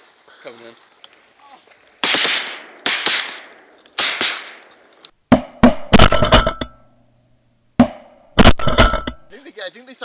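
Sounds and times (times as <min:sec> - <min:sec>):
shotgun blasts: 0:02.0 - 0:04.9.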